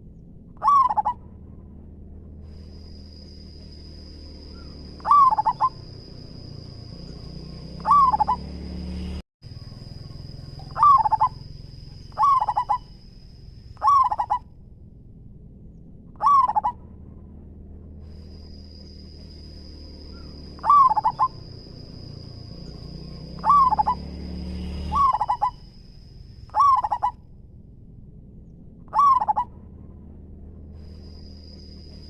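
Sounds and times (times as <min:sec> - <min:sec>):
dove cooing: 0:00.6 - 0:01.2, 0:04.5 - 0:08.6, 0:09.6 - 0:13.0, 0:13.8 - 0:14.4, 0:16.2 - 0:16.8, 0:20.1 - 0:24.1, 0:24.9 - 0:25.6, 0:26.5 - 0:27.2, 0:28.9 - 0:29.5.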